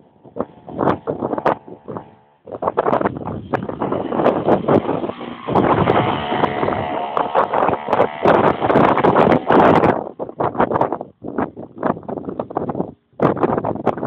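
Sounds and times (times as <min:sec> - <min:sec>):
small engine running: 0:00.0 - 0:10.8
wind buffeting microphone: 0:00.0 - 0:14.0.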